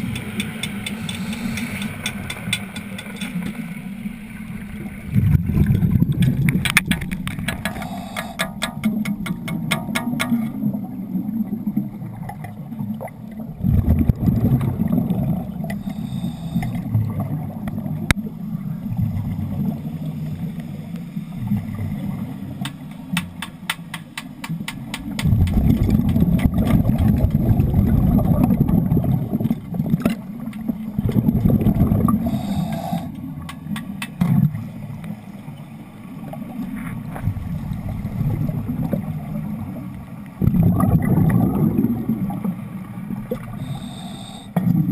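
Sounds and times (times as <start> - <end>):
faint ticks: 0.0 - 3.6, 15.7 - 16.9
underwater bubbling and gurgling: 0.0 - 44.9.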